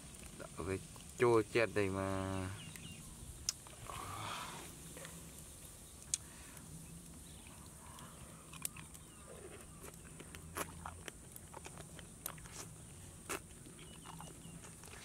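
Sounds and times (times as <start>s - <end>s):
person crunching while chewing: 8.5s - 15.0s.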